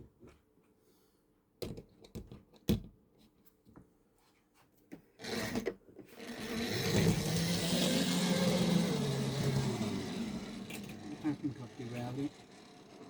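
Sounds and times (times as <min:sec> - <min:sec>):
model railway pieces clicking: 0:09.5 - 0:13.0.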